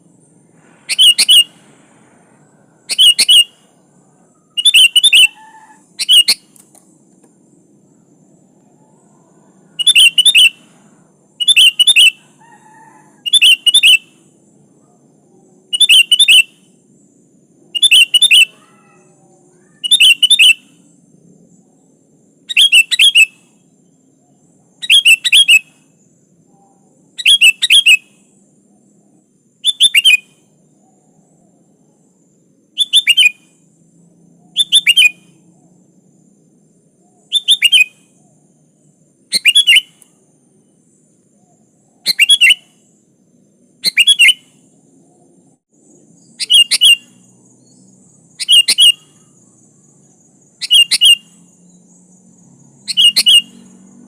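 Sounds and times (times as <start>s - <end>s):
bird calling: 0.6s - 7.4s, 8.5s - 14.3s, 15.6s - 16.8s, 17.7s - 20.9s, 22.4s - 28.1s, 29.6s - 32.1s, 32.7s - 33.7s, 34.3s - 35.9s, 37.0s - 38.6s, 39.3s - 40.2s, 41.3s - 43.0s, 43.8s - 45.3s, 46.2s - 51.8s, 52.8s - 54.0s.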